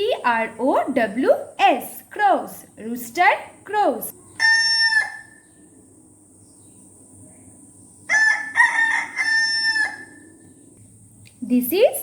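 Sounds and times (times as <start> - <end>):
rooster crowing: 4.4 - 5.5, 8.1 - 10.4.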